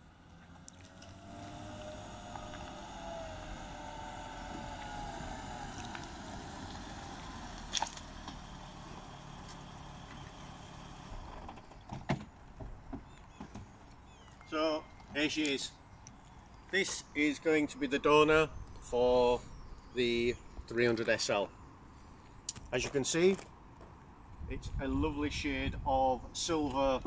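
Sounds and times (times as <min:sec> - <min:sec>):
car engine running: 0:00.0 - 0:11.6.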